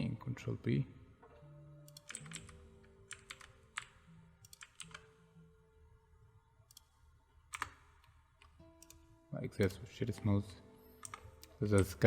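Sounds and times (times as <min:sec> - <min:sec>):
keyboard and mouse clicks: 0:01.9 - 0:05.2, 0:06.7 - 0:09.0, 0:11.0 - 0:12.0.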